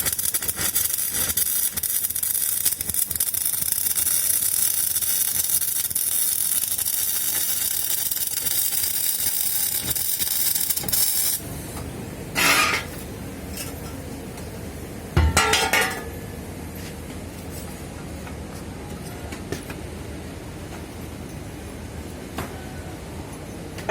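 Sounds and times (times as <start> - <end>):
welding arc crackling and hissing: 0.0 - 13.6.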